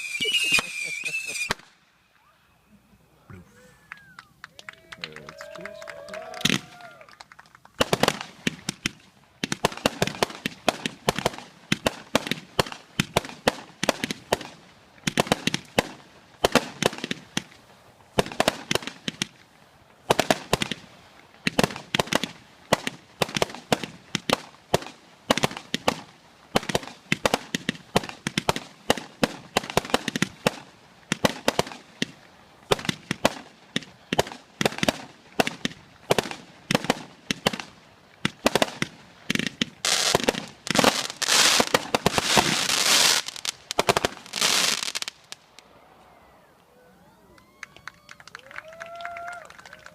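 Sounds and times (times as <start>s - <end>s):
firework battery pops and bangs: 0.0s - 1.8s, 7.7s - 20.8s, 21.4s - 45.4s.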